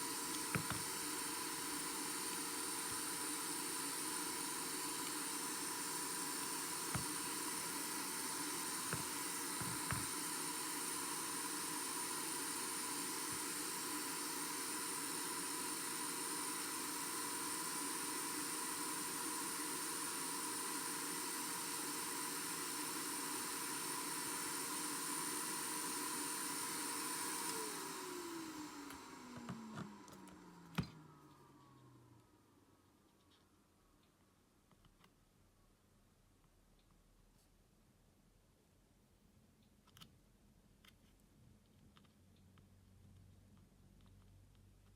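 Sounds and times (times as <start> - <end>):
blower motor whining: 0.0 - 32.3.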